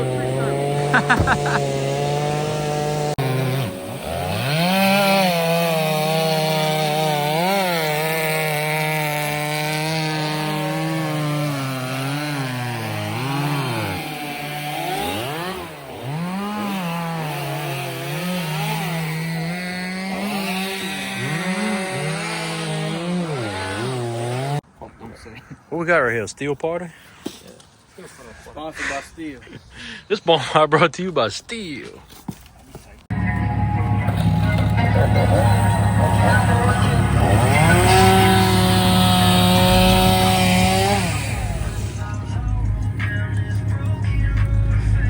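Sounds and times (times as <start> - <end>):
chainsaw cutting wood: 0.0 - 24.6, 33.1 - 42.3.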